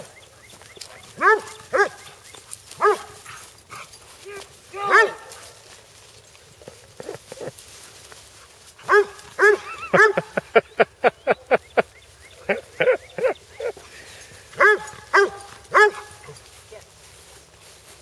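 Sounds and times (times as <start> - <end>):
dog barking: 1.2 - 2.2, 2.8 - 3.8, 4.8 - 5.5, 8.8 - 10.4, 14.6 - 16.4.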